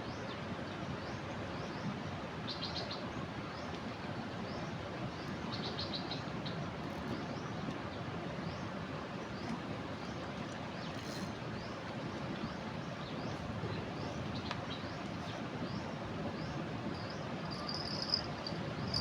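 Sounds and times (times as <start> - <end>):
small birds chirping: 12.5 - 19.0.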